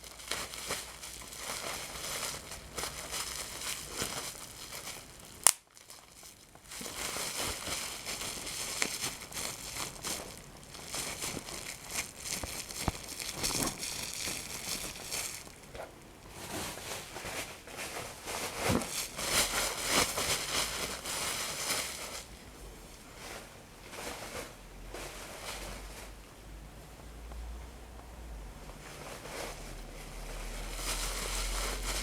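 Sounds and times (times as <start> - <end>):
paper crumpling and tearing: 0.0 - 15.7, 30.4 - 32.0.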